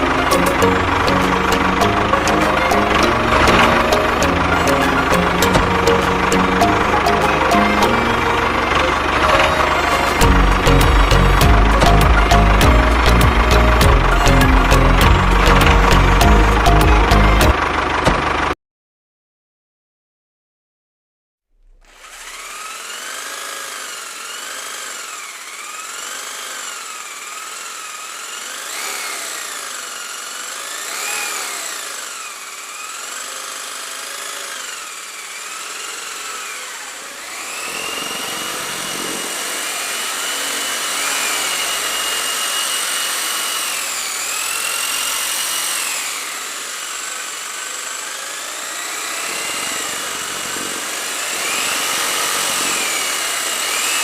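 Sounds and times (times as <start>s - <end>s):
small electric motor whining: 21.6s - 54.0s.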